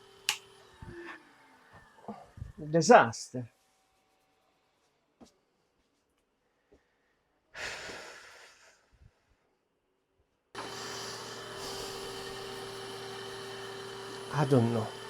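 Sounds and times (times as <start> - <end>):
motor humming: 0.0 - 2.6, 10.6 - 15.0.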